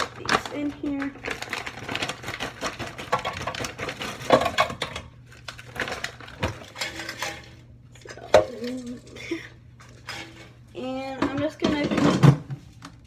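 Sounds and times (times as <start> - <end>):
plastic bag rustling: 0.0 - 7.6.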